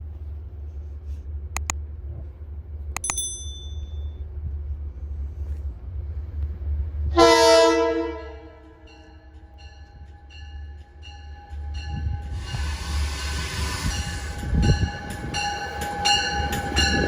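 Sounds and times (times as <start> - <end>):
train rumble: 0.0 - 17.0
sharp metallic clanks: 3.0 - 4.1
train horn blast: 7.1 - 9.0.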